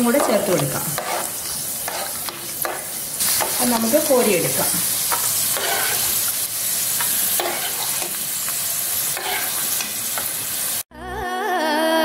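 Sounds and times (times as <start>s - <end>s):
nuts sizzling in hot oil: 0.0s - 10.9s
spoon scraping and tapping pan: 0.1s - 4.0s, 5.1s - 6.1s, 7.0s - 10.3s.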